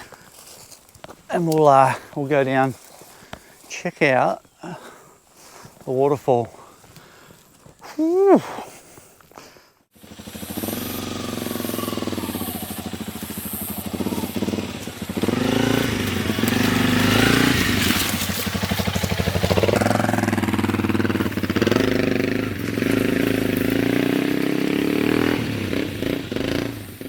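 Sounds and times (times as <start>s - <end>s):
motorcycle engine revving: 9.9s - 27.0s.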